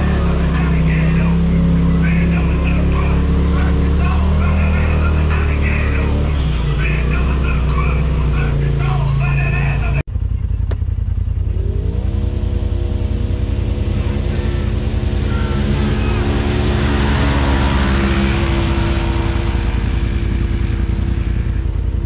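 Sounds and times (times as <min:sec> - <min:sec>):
utility vehicle engine rumbling: 0:00.0 - 0:22.0
rushing noise: 0:11.6 - 0:22.0.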